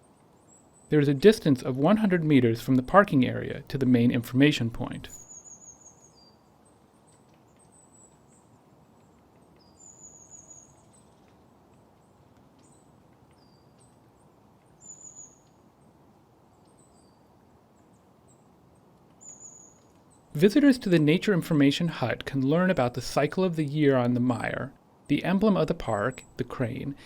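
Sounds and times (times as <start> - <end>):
faint outdoor hiss: 0.0 - 27.0
faint high bird chirps: 5.2 - 8.6, 9.5 - 11.4, 12.6 - 15.7, 19.2 - 20.3.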